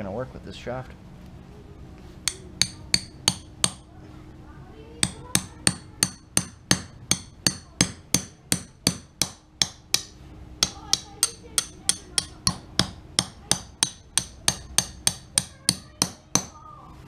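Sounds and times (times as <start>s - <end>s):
hammer striking steel shaft: 2.2s - 3.9s, 5.0s - 16.6s.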